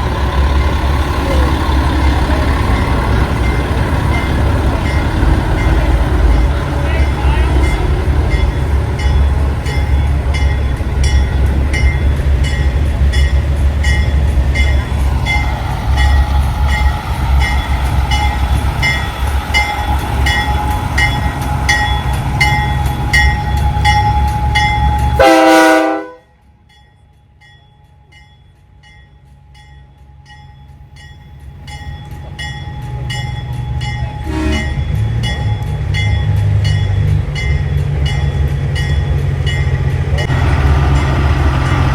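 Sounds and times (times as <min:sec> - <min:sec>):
diesel truck engine rumbling: 0:00.0 - 0:26.0, 0:31.3 - 0:41.9
air horn blast: 0:25.1 - 0:26.2, 0:34.2 - 0:34.8.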